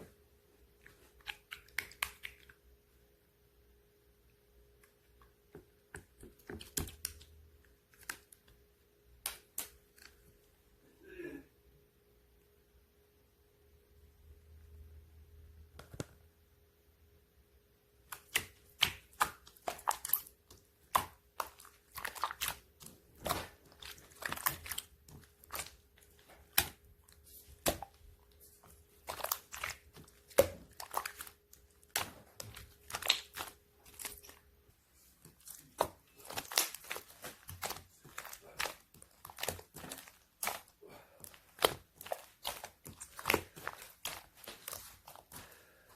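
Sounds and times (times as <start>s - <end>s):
slime squished by hand: 0.8s - 2.6s, 5.9s - 10.2s, 18.0s - 45.9s.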